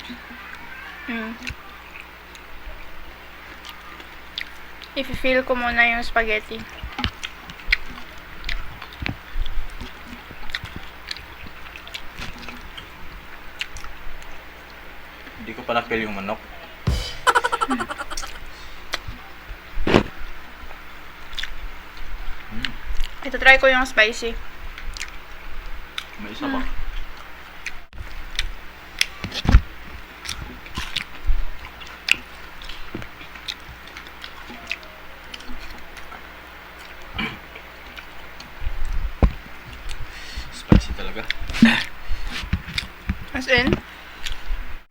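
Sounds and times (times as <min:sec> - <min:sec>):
dull thump: 0:16.9 - 0:18.4.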